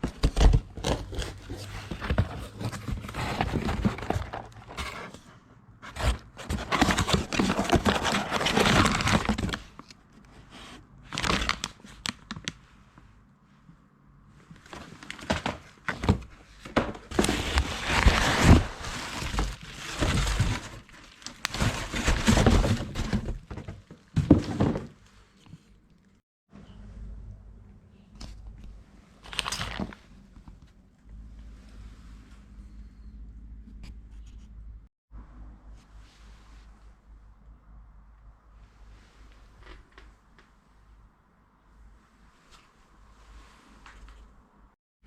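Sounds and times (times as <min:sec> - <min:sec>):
packaging crinkling and rustling: 0:00.0 - 0:05.2, 0:05.8 - 0:10.0, 0:10.6 - 0:12.6, 0:14.6 - 0:25.0, 0:29.2 - 0:30.1.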